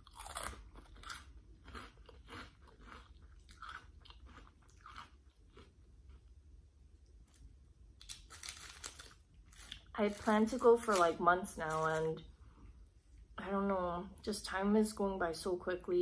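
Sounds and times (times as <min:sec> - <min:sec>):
chewing crunchy snacks: 0:00.0 - 0:06.3, 0:08.0 - 0:11.0.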